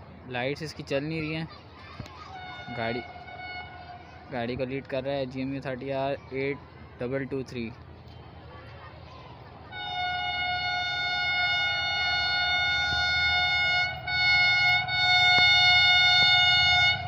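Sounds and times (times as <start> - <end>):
locomotive air horn: 2.3 - 4.3, 9.7 - 17.0
train rumbling: 9.9 - 17.0.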